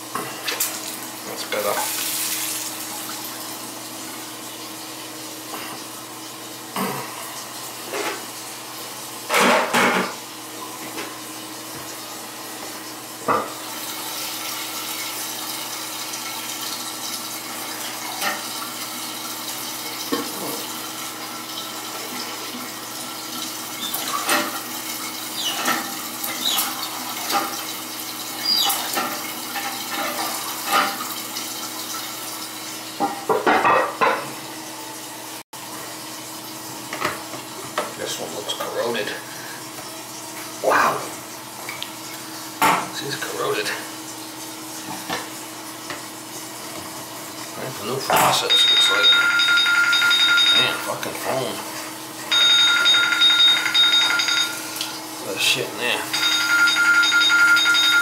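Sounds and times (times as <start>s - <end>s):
faucet running: 0.0s - 58.0s.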